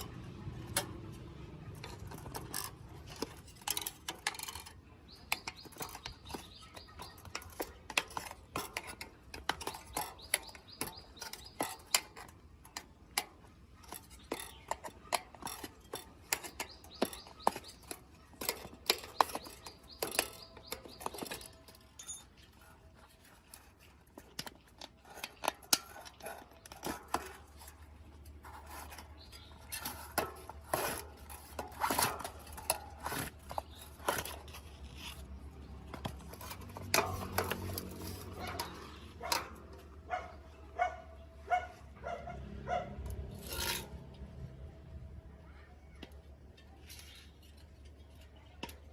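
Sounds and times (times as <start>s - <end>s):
hand tools clinking on bicycle parts: 0.0s - 41.7s, 45.8s - 48.9s
short ringing clinks: 20.2s - 22.5s.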